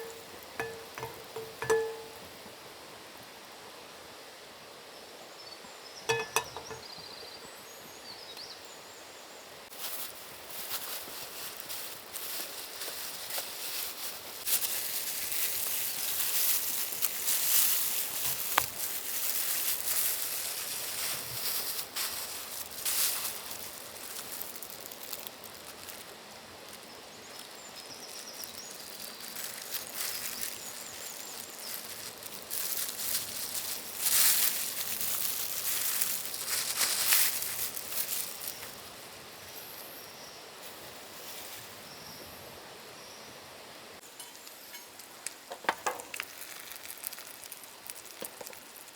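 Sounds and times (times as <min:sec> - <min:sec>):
rustling and scuffing: 0:00.0 - 0:02.3, 0:09.7 - 0:26.0, 0:29.1 - 0:38.8, 0:40.7 - 0:41.8.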